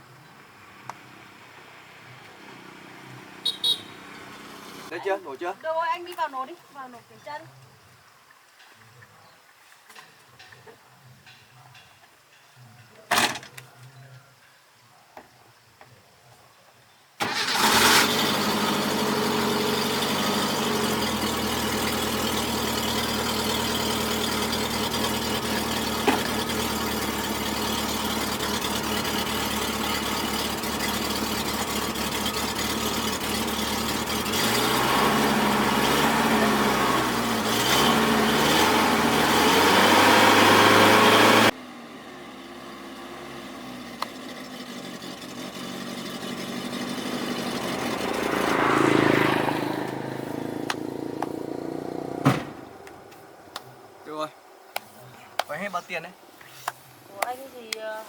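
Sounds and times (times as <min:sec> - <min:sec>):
truck engine revving: 0:00.8 - 0:05.0, 0:17.2 - 0:53.0
truck engine starting and idling: 0:17.2 - 0:53.1.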